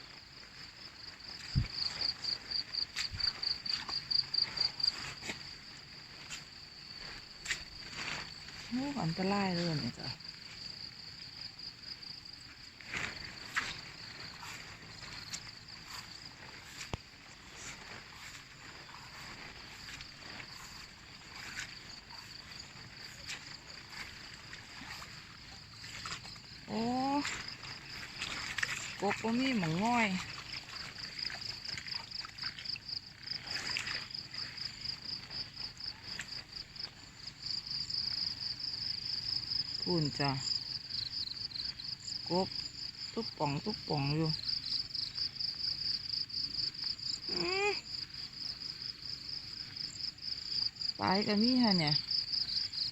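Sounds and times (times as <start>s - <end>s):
insects trilling: 0.0s - 52.9s
soft rustles: 12.6s - 26.5s.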